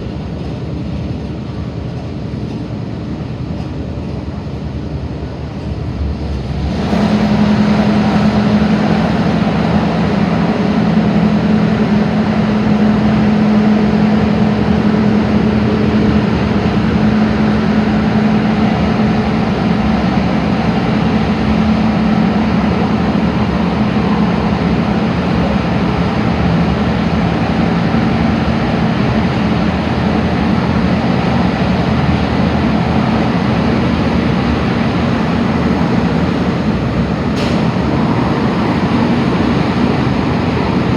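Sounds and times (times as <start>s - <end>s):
train wheels rumbling: 0.0s - 40.9s.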